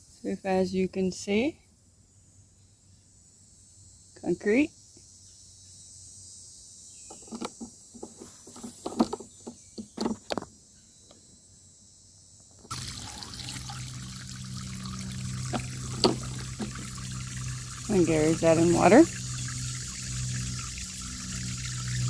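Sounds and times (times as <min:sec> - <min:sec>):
knocks and scrapes: 0:07.1 - 0:10.5, 0:15.5 - 0:17.0
water pouring into a hole: 0:12.7 - 0:22.0.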